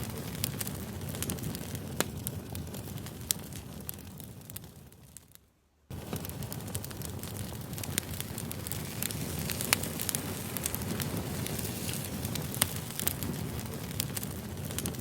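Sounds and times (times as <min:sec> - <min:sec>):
burning wood crackling and popping: 0:00.0 - 0:15.0
rush of flames: 0:00.0 - 0:15.0.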